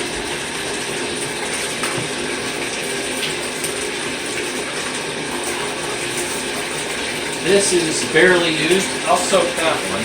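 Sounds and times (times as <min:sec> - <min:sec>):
tap water running into tub: 0:00.0 - 0:10.0.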